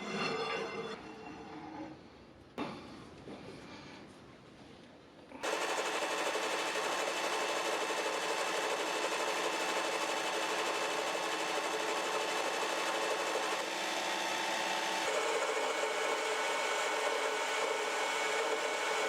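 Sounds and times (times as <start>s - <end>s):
small machine running: 5.4s - 19.0s.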